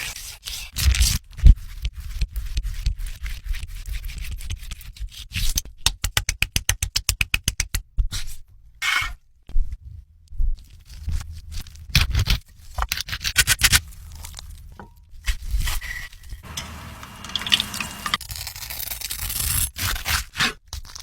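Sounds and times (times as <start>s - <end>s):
scraping and rubbing: 11.0s - 18.6s.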